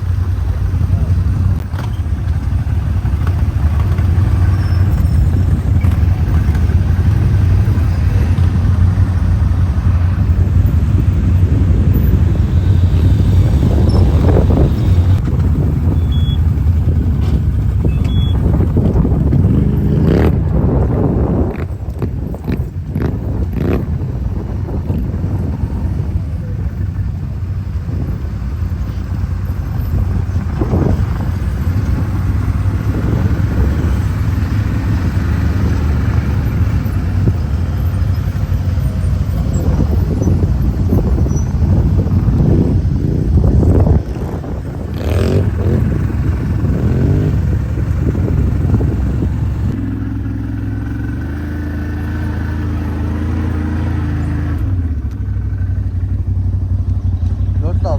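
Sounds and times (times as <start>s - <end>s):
off-road vehicle engine revving: 0.0s - 57.9s
short high beeps: 17.9s - 18.4s.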